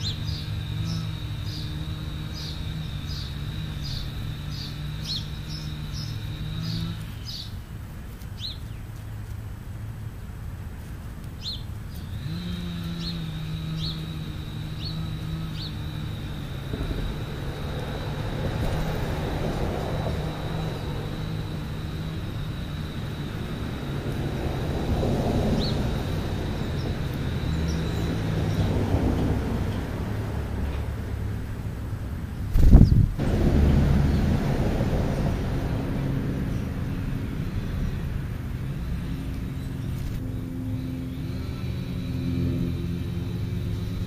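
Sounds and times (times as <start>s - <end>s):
bird chirping: 0.0s - 9.3s, 11.4s - 19.3s, 25.4s - 29.9s
low motor-like hum: 0.0s - 44.0s.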